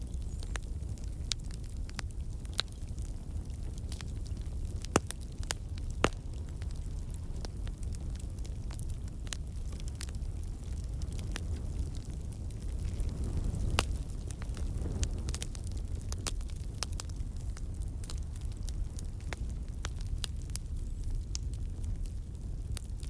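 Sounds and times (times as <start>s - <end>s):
logs crackling and popping: 0.0s - 23.0s
low rumble of flame: 0.0s - 23.0s.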